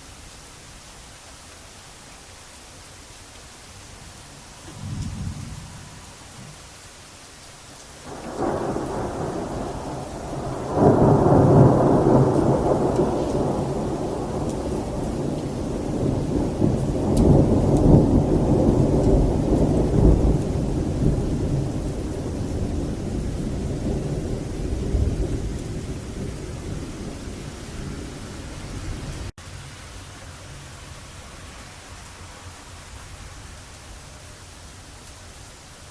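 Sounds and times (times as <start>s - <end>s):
steady rain: 0.0s - 35.9s
rolling thunder: 4.7s - 6.6s, 8.1s - 29.3s.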